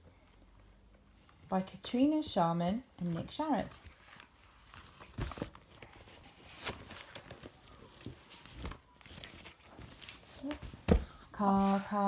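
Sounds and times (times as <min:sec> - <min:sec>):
book pages turning: 0:03.8 - 0:12.0.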